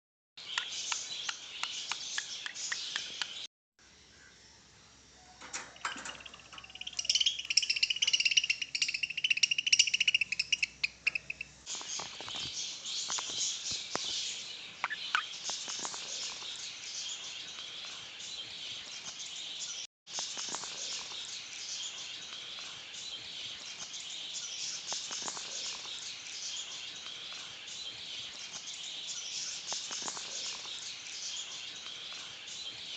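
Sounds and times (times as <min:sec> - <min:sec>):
budgerigars chirping and chattering: 0:06.2 - 0:17.8.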